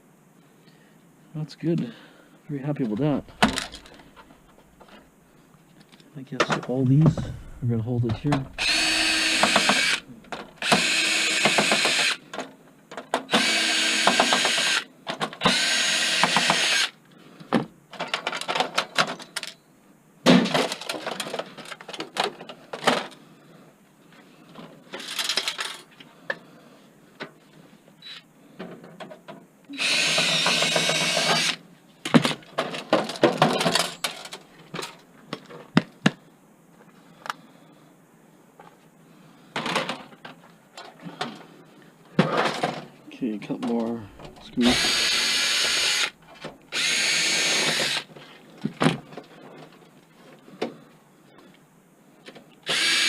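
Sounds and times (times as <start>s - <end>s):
power drill removing screws: 3.1s - 4.1s, 8.2s - 12.2s, 13.3s - 17.0s, 29.8s - 31.6s, 44.2s - 48.1s, 52.6s - 53.0s
screws and metal parts clattering: 3.2s - 5.0s, 24.9s - 25.9s, 32.6s - 35.0s.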